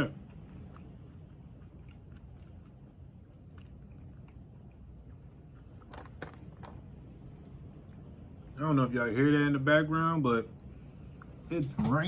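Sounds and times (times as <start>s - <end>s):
chewing crunchy cookie: 0.0s - 8.6s.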